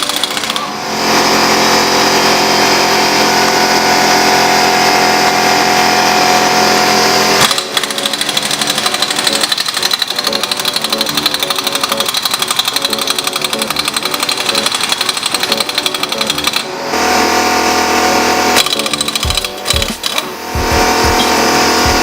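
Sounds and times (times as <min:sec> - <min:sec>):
impact wrench hammering: 0:00.0 - 0:00.7, 0:07.4 - 0:16.7, 0:18.6 - 0:22.0.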